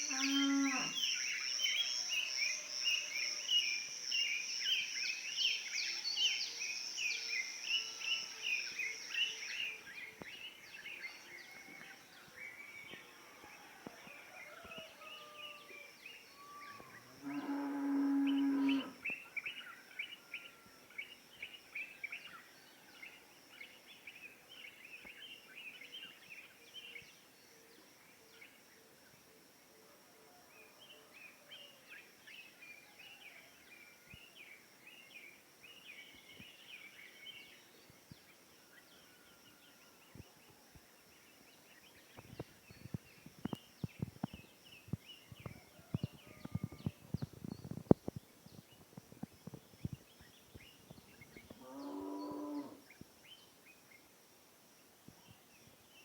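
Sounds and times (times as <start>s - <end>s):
cow mooing: 0.1s - 1.0s, 17.2s - 19.0s
small birds chirping: 41.3s - 53.1s.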